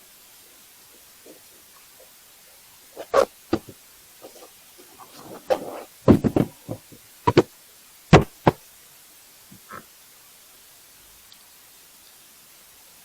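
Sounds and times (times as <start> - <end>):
short scrape or rustle: 3.0 - 7.4
hard objects knocking: 3.0 - 7.5, 8.1 - 8.6.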